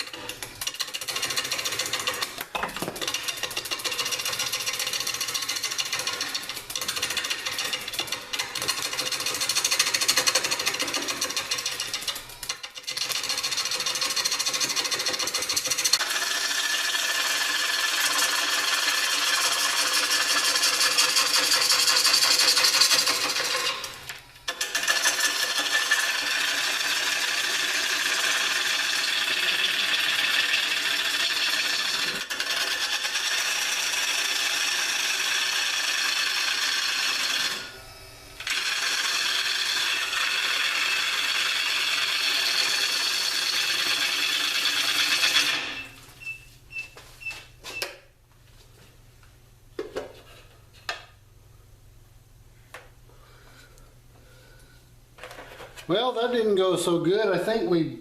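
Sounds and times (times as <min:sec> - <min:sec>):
wood lathe gouge scraping wood: 0:00.0 - 0:37.8, 0:38.4 - 0:45.9.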